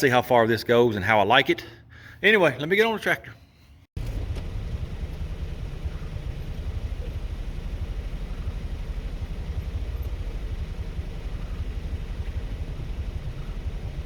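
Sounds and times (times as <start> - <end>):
tractor engine running: 4.0 - 14.0.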